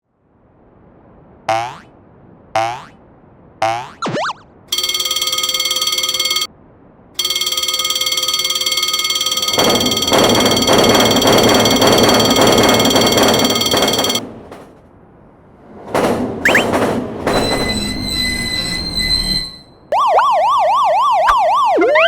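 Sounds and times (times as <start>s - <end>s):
railroad crossing bell ringing: 4.7s - 6.5s, 7.2s - 14.2s
passing train rumble: 9.6s - 18.4s.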